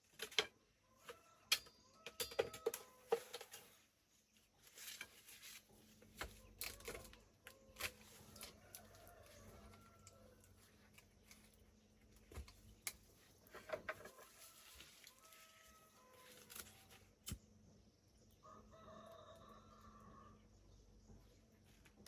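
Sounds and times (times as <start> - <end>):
rooster crowing: 8.2 - 10.7, 14.2 - 16.5, 18.4 - 20.4.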